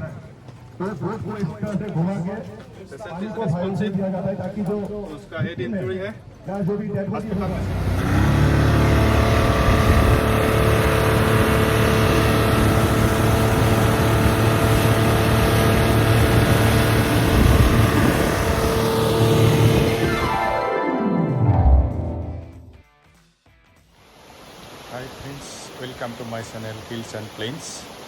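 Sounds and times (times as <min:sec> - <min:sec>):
motorboat engine droning: 0:07.3 - 0:20.6.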